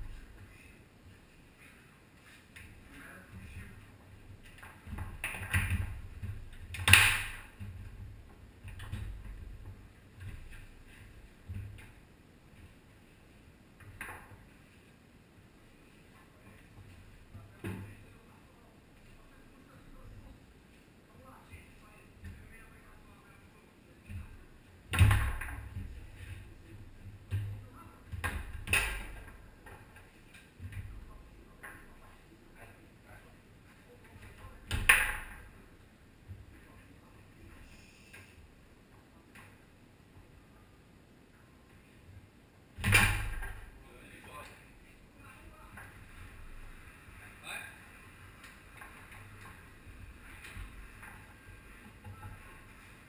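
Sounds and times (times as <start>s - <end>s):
foosball ball and rods clacking: 4.5s - 10.7s, 25.0s - 26.0s, 28.2s - 30.8s, 34.7s - 35.5s, 42.8s - 43.7s.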